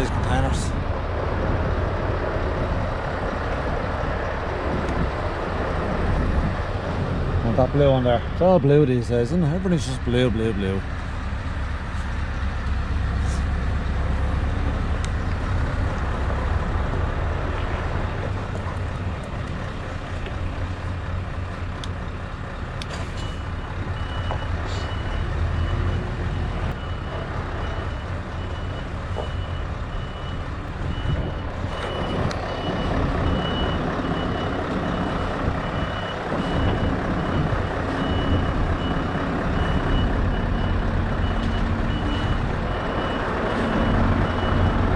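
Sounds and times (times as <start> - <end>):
truck engine rumbling: 0.0 - 44.9
reversing alarm beeping: 23.2 - 44.9.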